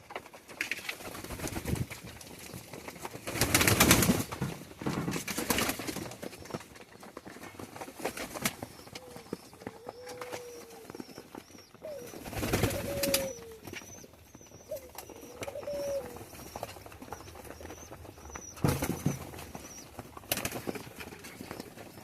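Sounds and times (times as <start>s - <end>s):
wings flapping: 0.0s - 22.0s
pigeons cooing: 7.6s - 22.0s.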